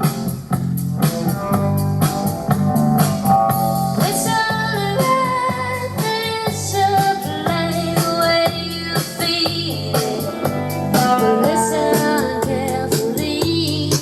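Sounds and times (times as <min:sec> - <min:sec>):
song with guitar and beat: 0:00.0 - 0:14.0
person singing: 0:04.0 - 0:14.0.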